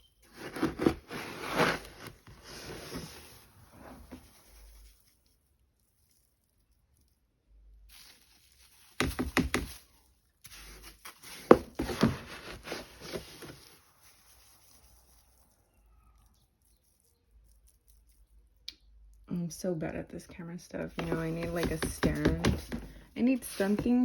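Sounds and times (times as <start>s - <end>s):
scoop knocking in cat litter: 21.0s - 24.0s.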